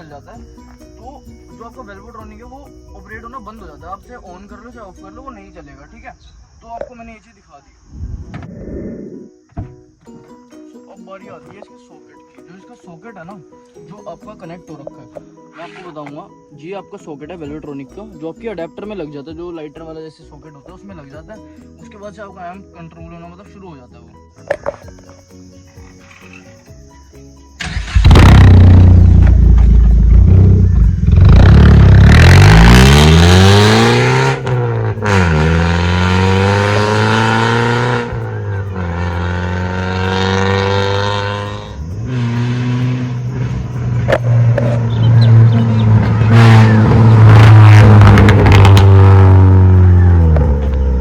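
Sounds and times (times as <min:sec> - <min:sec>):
car engine revving: 0:27.6 - 0:51.0
exhaust crackles: 0:27.6 - 0:51.0.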